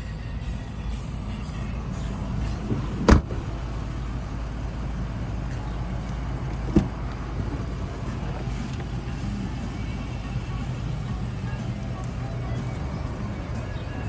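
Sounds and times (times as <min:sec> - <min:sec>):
car engine rumbling: 0:00.0 - 0:14.0.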